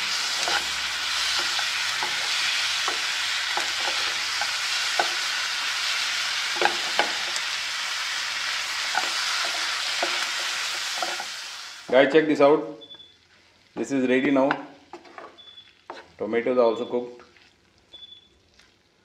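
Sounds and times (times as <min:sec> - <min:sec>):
food sizzling in a frying pan: 0:00.0 - 0:16.1
spatula scraping and tapping pan: 0:00.4 - 0:05.3, 0:06.5 - 0:07.4, 0:08.9 - 0:11.3, 0:13.8 - 0:16.2.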